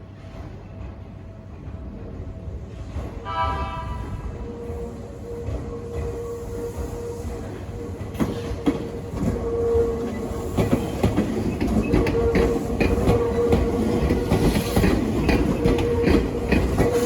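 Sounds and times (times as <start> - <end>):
electric train passing: 0.7 - 17.0
train wheels clacking over rail joints: 8.0 - 17.0.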